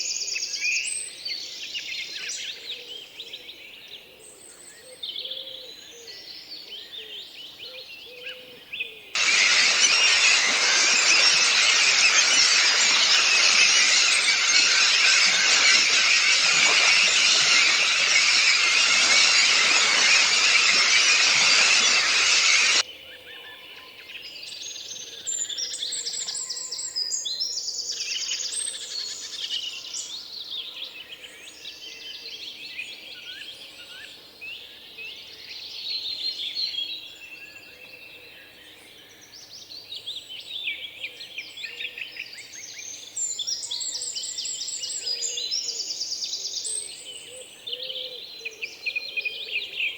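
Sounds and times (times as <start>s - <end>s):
dense wash of high sound: 9.2s - 22.8s
songbirds chirping and trilling: 9.2s - 22.8s.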